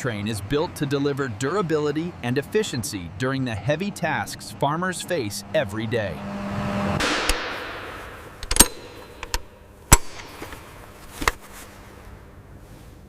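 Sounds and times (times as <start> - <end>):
sharp knocks: 7.0 - 10.6.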